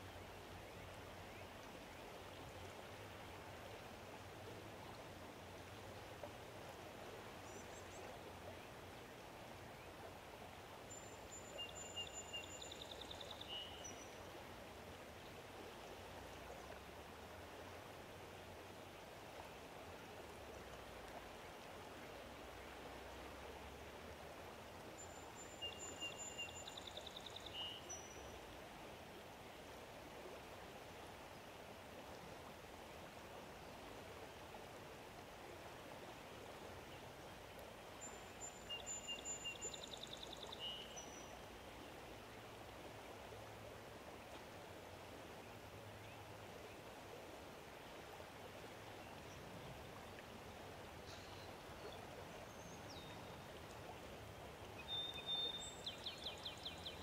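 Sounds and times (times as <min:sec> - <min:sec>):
faint outdoor rush: 0:26.4 - 0:57.0.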